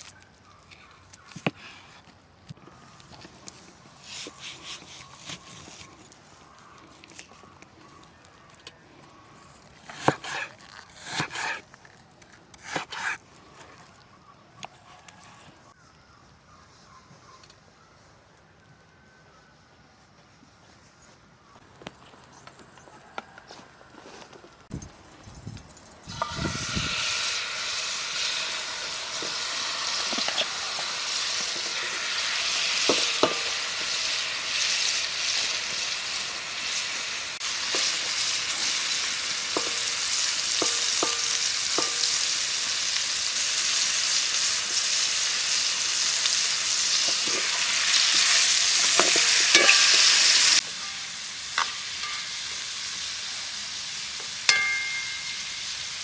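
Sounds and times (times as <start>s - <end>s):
food sizzling in a pan: 26.0s - 56.0s.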